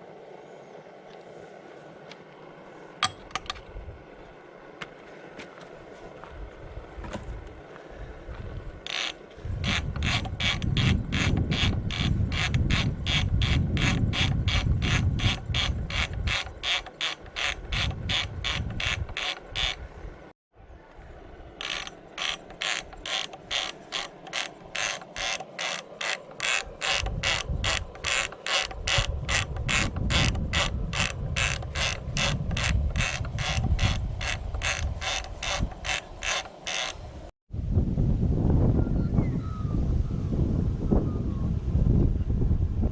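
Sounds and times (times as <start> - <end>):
diesel engine knocking slowly: 21.6 - 36.7.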